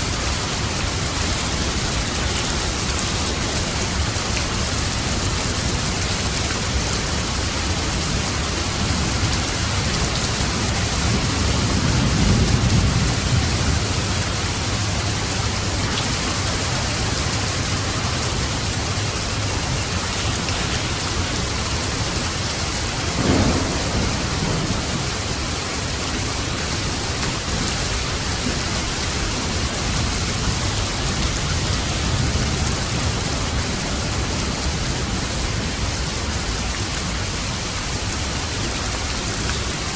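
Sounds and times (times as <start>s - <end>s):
steady rain falling: 0.0s - 39.9s
low roll of thunder: 7.4s - 18.9s, 22.9s - 36.8s
sharp thunderclap: 23.1s - 27.7s.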